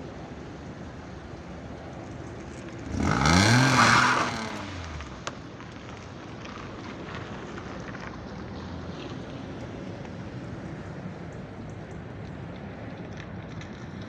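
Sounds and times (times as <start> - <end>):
car engine revving and idling: 2.2 - 5.4.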